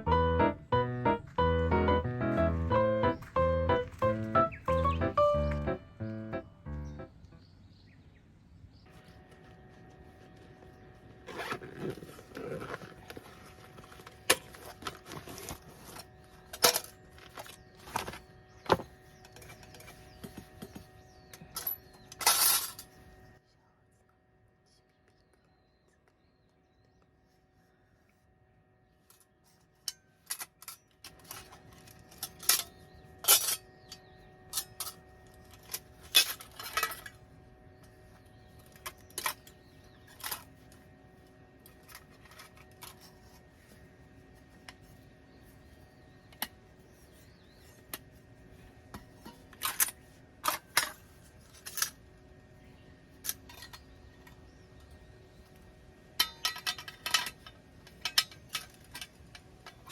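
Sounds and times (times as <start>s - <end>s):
metal camp gear clinking: 11.3s - 20.2s, 29.1s - 37.2s, 56.2s - 59.9s.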